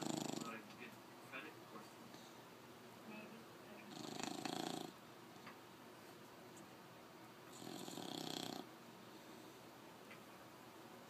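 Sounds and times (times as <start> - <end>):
dog snoring: 0.0 - 0.6, 3.9 - 5.0, 7.5 - 8.7.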